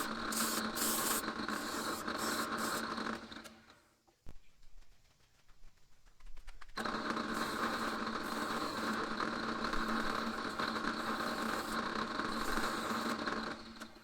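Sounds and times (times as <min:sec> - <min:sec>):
electric power tool running: 0:00.0 - 0:03.4, 0:06.8 - 0:14.0.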